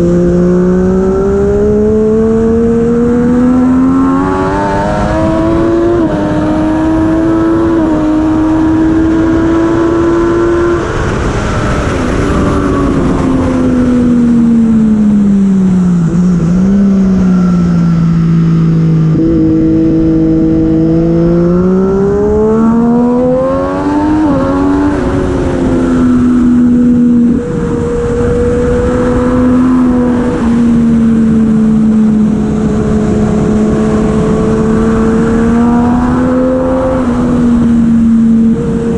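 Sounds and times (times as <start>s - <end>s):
superbike engine at speed: 0.0s - 38.9s
wind noise: 0.0s - 38.9s.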